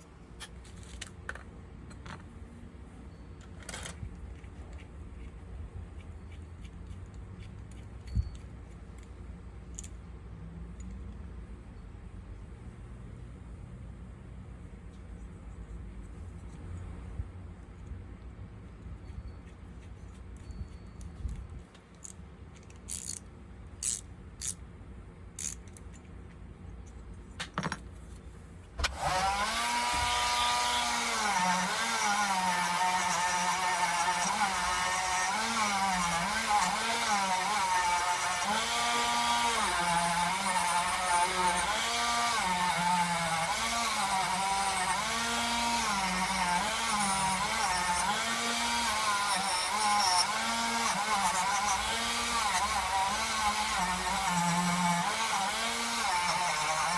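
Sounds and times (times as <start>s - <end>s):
small electric power tool: 22.9s - 23.2s, 23.8s - 24.6s, 25.4s - 25.6s, 28.8s - 56.9s.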